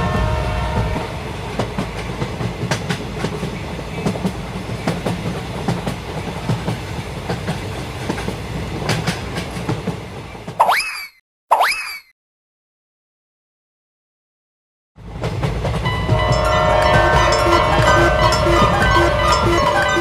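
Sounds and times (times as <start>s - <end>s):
train horn: 0.0s - 1.4s, 15.9s - 20.0s
train rumbling and wheels clacking: 0.0s - 10.6s, 15.0s - 20.0s
cartoon boing sound effect: 10.6s - 12.1s.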